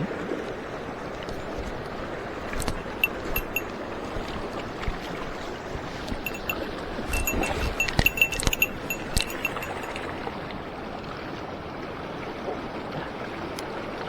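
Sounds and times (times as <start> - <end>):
small sharp metallic clicks: 2.6 - 3.7, 6.2 - 10.1.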